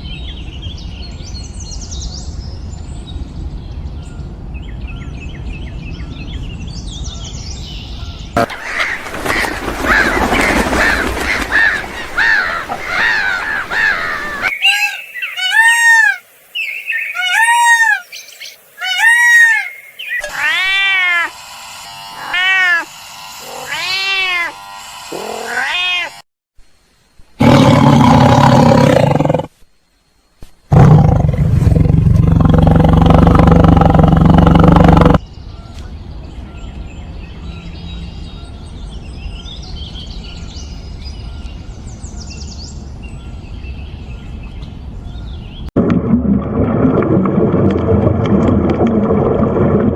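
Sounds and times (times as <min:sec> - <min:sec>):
meow-like animal cries: 0:18.8 - 0:21.3, 0:22.2 - 0:24.6, 0:25.2 - 0:26.2
big cat growling and roaring: 0:27.4 - 0:29.5, 0:30.7 - 0:35.2.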